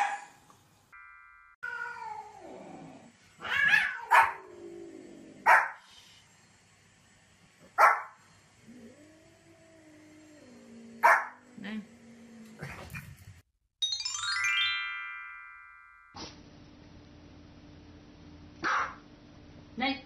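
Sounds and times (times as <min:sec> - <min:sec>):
small dog yapping: 0:03.4 - 0:04.4, 0:18.6 - 0:19.0.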